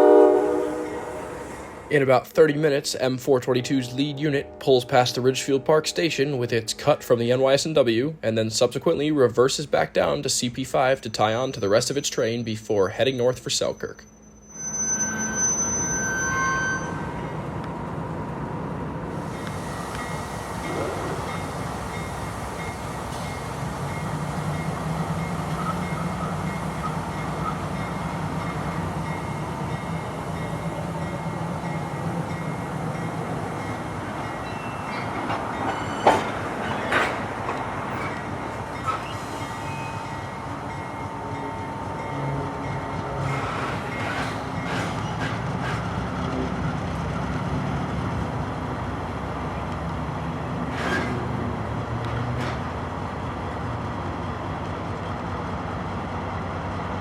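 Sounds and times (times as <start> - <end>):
train wheel noise: 13.0 - 57.0
thin wheel squeal: 13.8 - 17.3.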